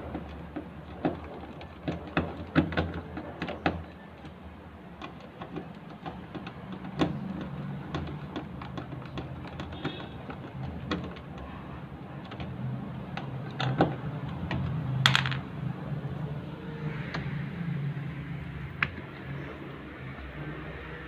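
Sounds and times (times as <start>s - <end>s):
clicks and knocks of machine parts: 0.0s - 16.2s
metal parts clattering: 15.0s - 15.5s.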